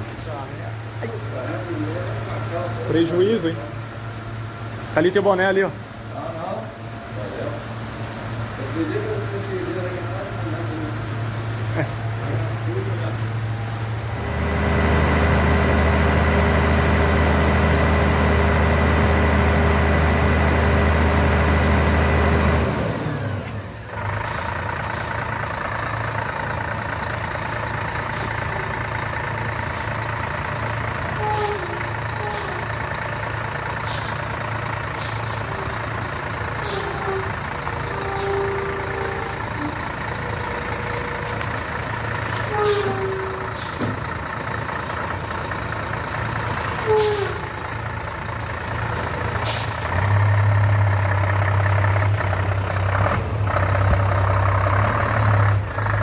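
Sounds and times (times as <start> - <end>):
truck engine running: 0.0 - 56.0
short sharp clicks or hisses: 49.4 - 49.9.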